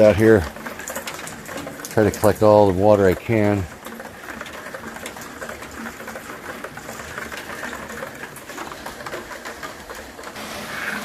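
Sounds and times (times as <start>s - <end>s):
light rain falling: 0.0s - 11.0s.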